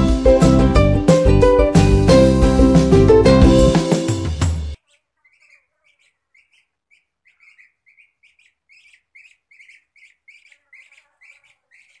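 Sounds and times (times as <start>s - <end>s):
faint bird chirping: 4.8s - 12.0s.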